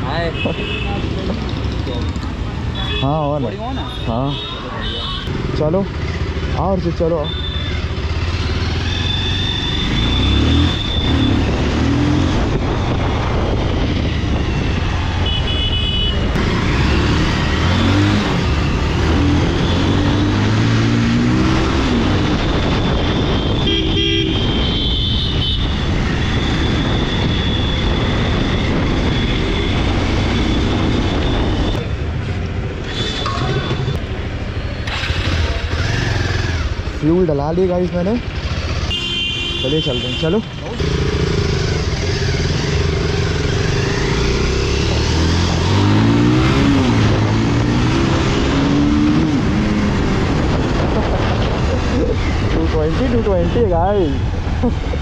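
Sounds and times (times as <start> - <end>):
vehicle horns honking: 2.7 - 5.4, 7.1 - 7.9, 8.8 - 11.6, 15.2 - 16.3, 22.9 - 28.2, 38.8 - 41.0
motorcycle engine accelerating: 5.3 - 15.2, 16.3 - 23.5, 25.8 - 39.0, 40.7 - 53.3.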